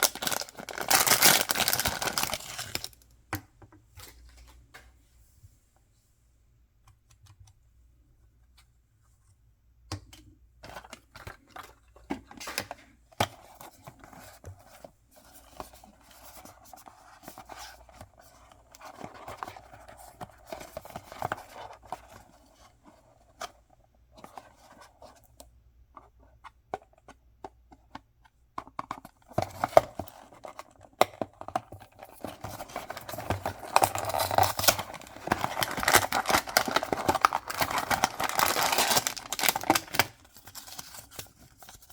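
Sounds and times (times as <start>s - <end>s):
clicks and scratching of packaging: 0.0s - 3.0s, 10.6s - 23.6s, 24.2s - 41.9s
wrapping crinkling and tearing: 0.0s - 3.0s, 32.0s - 41.9s.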